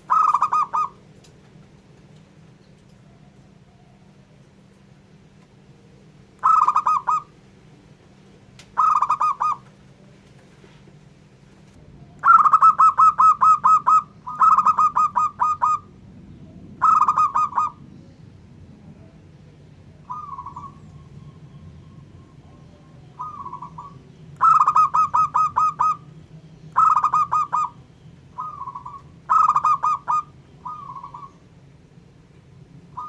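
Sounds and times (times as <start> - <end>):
dove cooing: 0.0 - 1.1, 6.4 - 7.4, 8.6 - 9.8, 12.1 - 16.0, 16.7 - 17.8, 20.0 - 31.6
faint low hum: 0.0 - 33.0.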